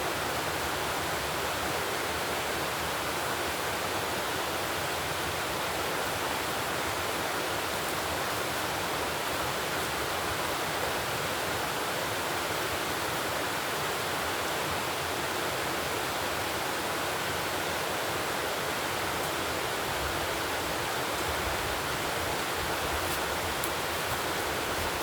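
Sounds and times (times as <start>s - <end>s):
running water: 17.2s - 25.0s.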